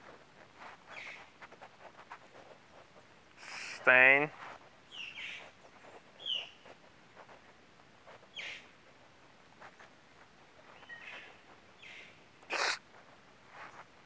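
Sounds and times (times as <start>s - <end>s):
faint outdoor ambience: 0.0s - 14.0s
high bird chirps: 6.2s - 6.6s.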